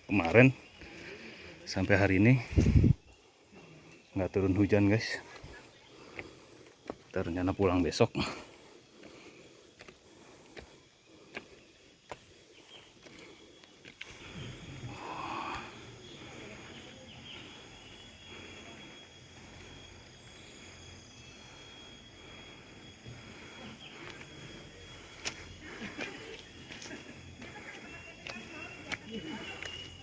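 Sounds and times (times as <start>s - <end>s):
footsteps on rocky trail: 0.1s - 3.0s, 4.4s - 14.6s, 23.2s - 30.0s
high-pitched insect buzz: 12.6s - 30.0s.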